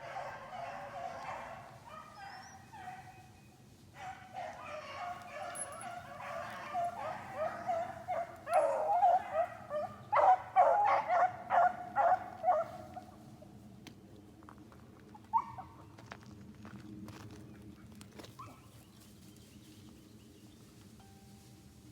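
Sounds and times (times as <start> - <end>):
dogs baying and barking: 0.0 - 3.4, 4.0 - 13.0.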